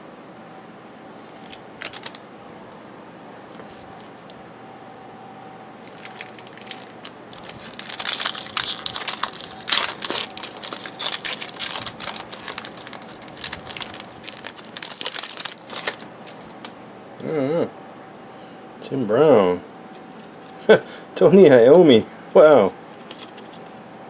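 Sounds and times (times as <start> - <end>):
wrapper crinkling: 1.3 - 2.3, 5.8 - 16.8.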